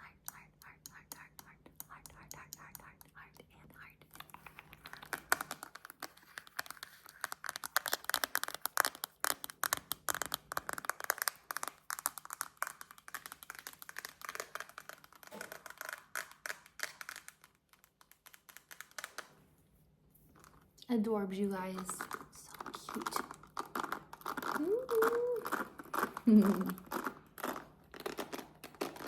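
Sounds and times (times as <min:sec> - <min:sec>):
rapid tapping on hard object: 0:05.1 - 0:19.3.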